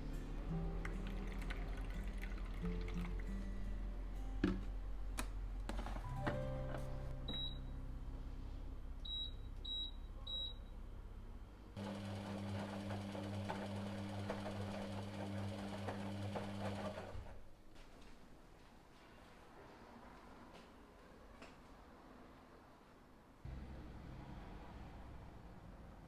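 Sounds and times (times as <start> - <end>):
appliance beeps: 7.2 - 7.7, 9.0 - 10.7
appliance motor hum: 11.8 - 17.2.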